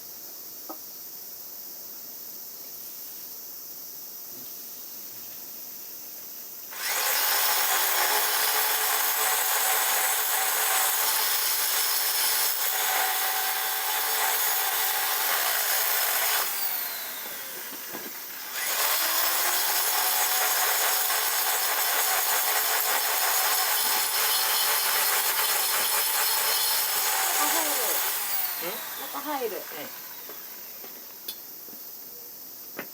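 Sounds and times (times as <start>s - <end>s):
power tool grinding: 6.7s - 31.4s.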